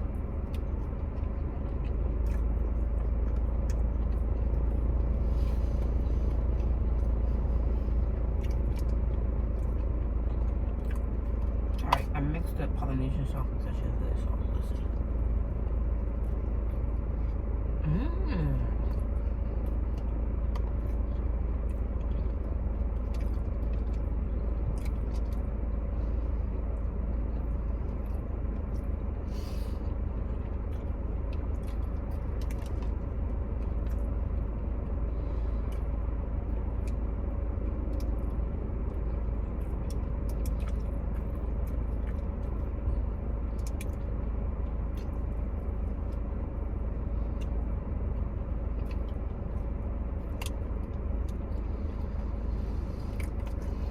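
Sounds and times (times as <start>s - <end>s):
person chewing food: 0.0s - 11.9s, 18.6s - 53.9s
steady low hum: 0.0s - 53.9s
small clicks and crunches: 30.4s - 34.5s, 43.5s - 44.2s.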